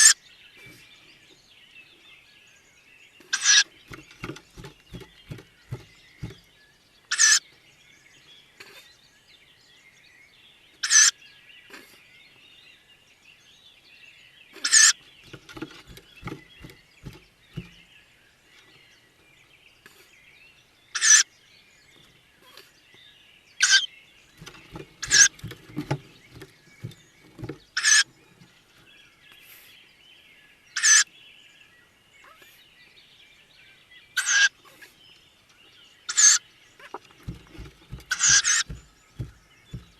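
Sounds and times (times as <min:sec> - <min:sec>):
scratching and knocking in nest box: 0:03.4 - 0:07.4, 0:14.7 - 0:18.0, 0:24.3 - 0:28.9, 0:36.8 - 0:39.9
owlets hissing begging calls: 0:07.1 - 0:07.4.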